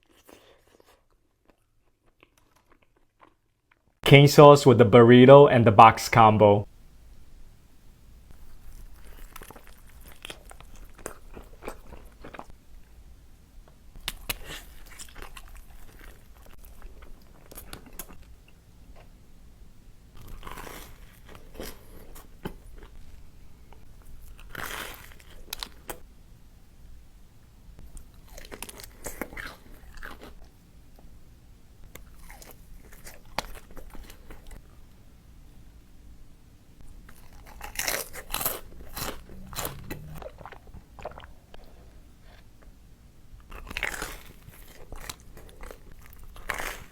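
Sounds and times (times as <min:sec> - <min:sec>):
person chewing: 0:00.0 - 0:03.8, 0:08.4 - 0:12.5, 0:14.0 - 0:19.1, 0:20.2 - 0:26.0, 0:27.9 - 0:31.1, 0:31.9 - 0:34.6, 0:36.9 - 0:42.8, 0:43.4 - 0:46.9
crunchy food crunching: 0:00.0 - 0:03.9, 0:08.4 - 0:12.5, 0:14.0 - 0:19.1, 0:20.2 - 0:26.0, 0:27.9 - 0:30.6, 0:31.9 - 0:34.7, 0:36.8 - 0:42.7, 0:43.4 - 0:46.9.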